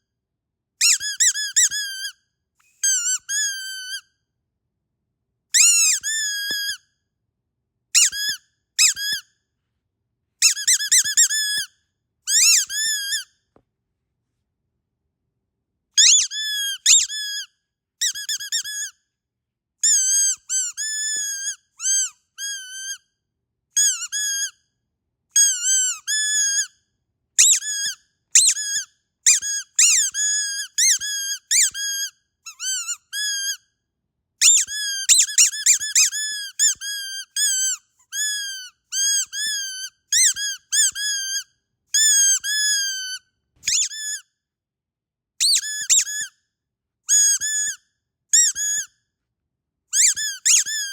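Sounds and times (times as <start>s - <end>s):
squeaky dog toy squealing: 0.8s - 2.2s, 2.8s - 4.2s, 5.5s - 6.8s, 8.0s - 9.3s, 10.4s - 11.7s, 12.3s - 13.3s, 16.0s - 19.0s, 19.8s - 23.1s, 23.8s - 24.6s, 25.3s - 26.8s, 27.4s - 33.7s, 34.4s - 44.3s, 45.4s - 46.4s, 47.1s - 48.9s, 49.9s - 50.9s.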